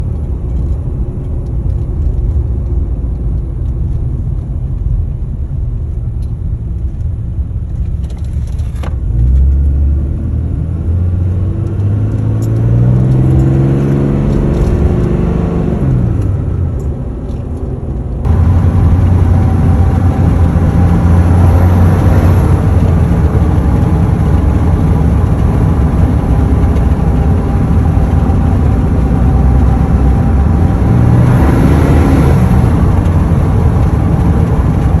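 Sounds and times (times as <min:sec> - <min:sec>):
diesel engine idling and revving: 0:00.0 - 0:35.0.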